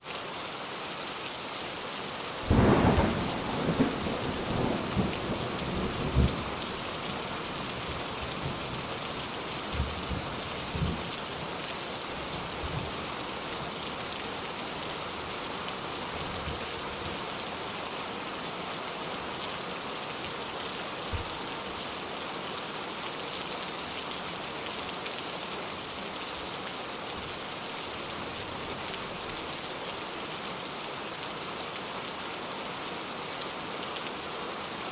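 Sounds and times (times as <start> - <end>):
heavy rain: 0.0 - 34.9
thunderclap rumbling: 2.5 - 6.8.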